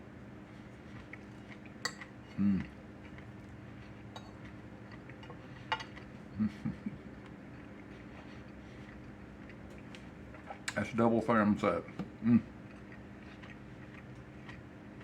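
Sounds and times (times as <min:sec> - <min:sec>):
man humming: 0:02.4 - 0:02.7.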